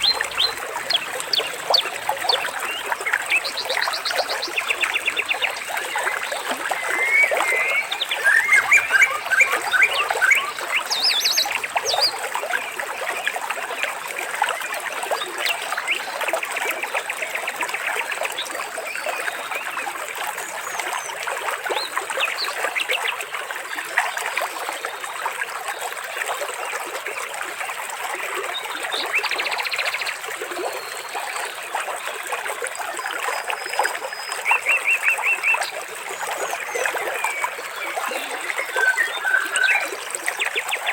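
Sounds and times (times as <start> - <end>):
birds chirping and trilling: 0.0 - 12.2, 37.2 - 40.7
water trickling: 0.0 - 40.9.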